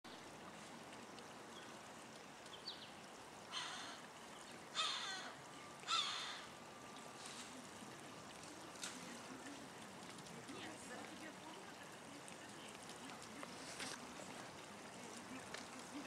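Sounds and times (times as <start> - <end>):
stream trickling: 0.1 - 16.0
harsh bird calls: 5.9 - 6.5.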